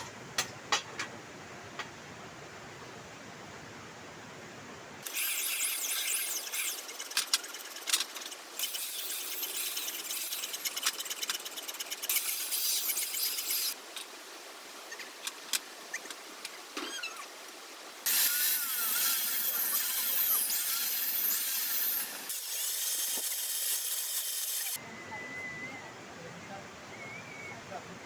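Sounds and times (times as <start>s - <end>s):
angle grinder grinding stone: 5.0s - 13.8s, 18.0s - 24.8s.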